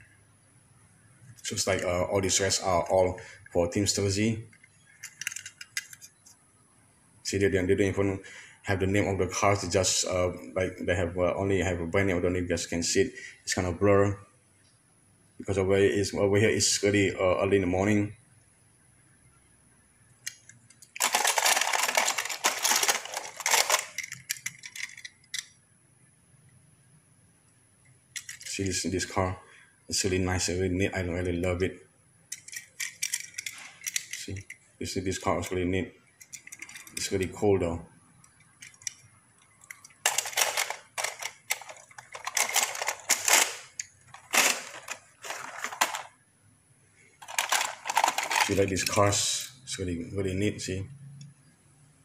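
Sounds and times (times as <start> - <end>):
toy cars clattering: 4.5 - 6.1, 20.2 - 25.5, 28.1 - 28.6, 32.3 - 34.7, 36.2 - 37.2, 38.3 - 46.2, 47.2 - 49.5.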